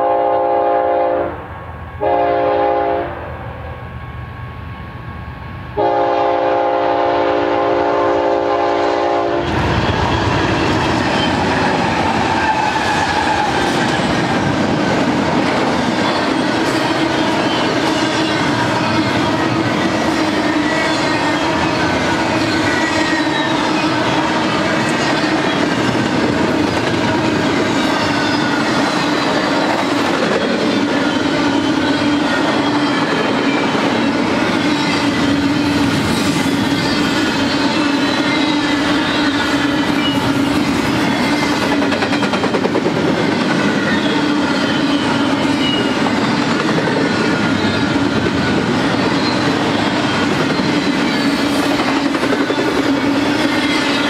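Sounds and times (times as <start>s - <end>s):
locomotive horn chord: 0.0s - 1.4s, 2.0s - 3.4s, 5.8s - 9.5s
train rumbling and clattering: 0.0s - 54.0s
train wheels clacking on rails: 8.4s - 54.0s.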